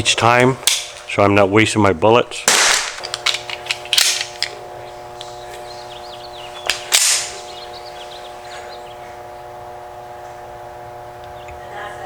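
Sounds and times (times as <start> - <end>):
steady hum: 0.0 - 12.0
pistol shot with echo: 2.4 - 3.0, 6.9 - 7.4.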